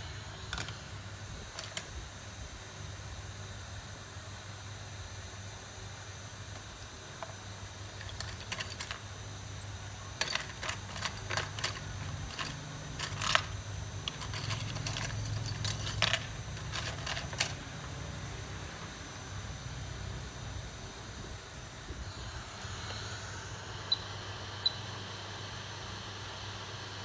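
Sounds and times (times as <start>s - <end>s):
steady low hum: 0.0s - 27.0s
small metal tools clicking: 8.0s - 9.0s, 10.2s - 17.6s.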